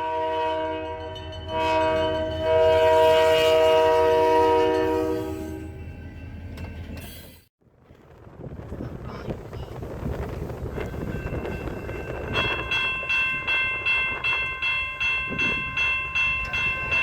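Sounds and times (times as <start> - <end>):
locomotive air horn chord: 0.0 - 5.8.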